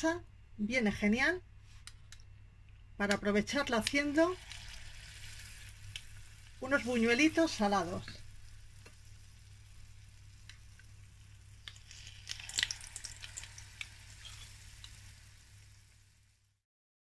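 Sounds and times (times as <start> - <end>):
crackles and light metal clicks: 1.8 - 16.0
batter sizzling in hot oil: 3.5 - 16.6.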